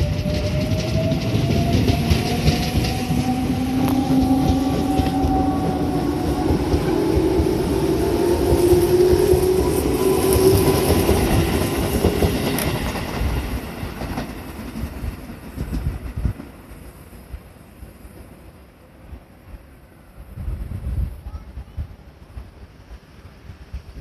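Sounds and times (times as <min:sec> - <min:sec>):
wheels clattering on rails: 0:00.0 - 0:07.5
electric train motor whine: 0:00.0 - 0:11.5.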